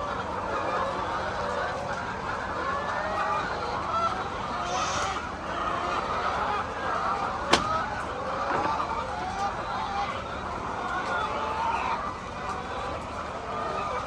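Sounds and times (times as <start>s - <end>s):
hens clucking: 0.0s - 14.0s
sharp click: 7.5s - 7.9s.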